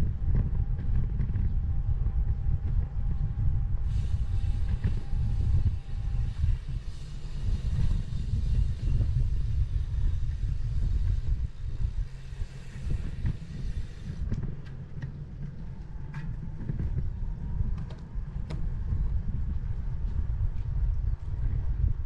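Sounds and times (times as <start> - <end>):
wind buffeting microphone: 0.0 - 22.0
tyres hissing on path: 3.8 - 14.7.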